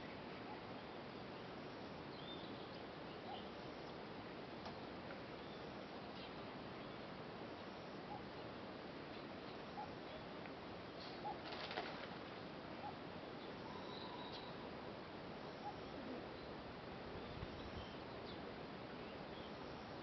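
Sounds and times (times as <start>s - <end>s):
open-air background hiss: 0.0s - 20.0s
faint short bird calls: 13.6s - 14.6s.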